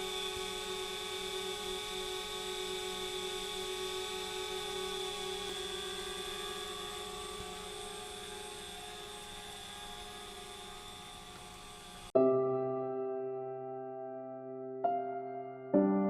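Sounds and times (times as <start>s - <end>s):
drone propellers whining: 0.0s - 12.2s
piano music: 12.1s - 16.0s.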